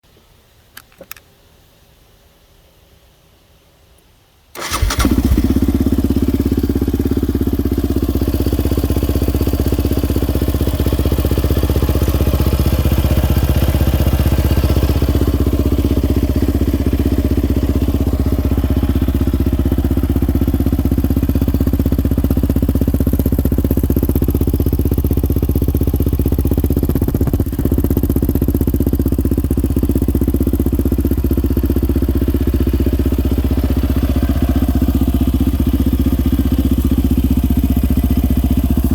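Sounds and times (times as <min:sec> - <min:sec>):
engine starting and idling: 0:04.5 - 0:08.4.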